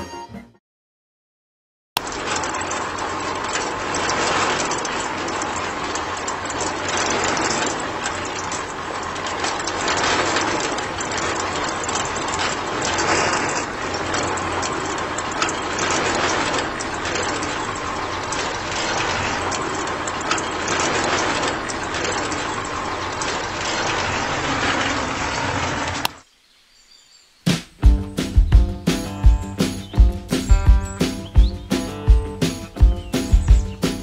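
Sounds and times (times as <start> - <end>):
small motor rattling whir: 2.0 - 26.2.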